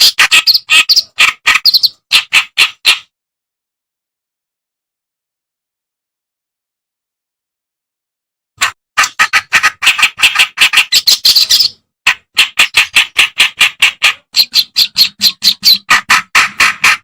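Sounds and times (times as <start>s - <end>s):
reed warbler singing harsh notes: 0.0s - 2.1s.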